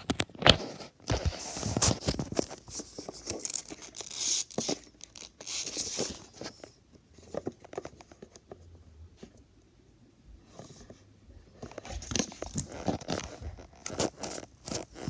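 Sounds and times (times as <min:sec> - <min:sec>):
hands rustling crinkly packaging: 0:00.0 - 0:08.5, 0:11.6 - 0:15.0.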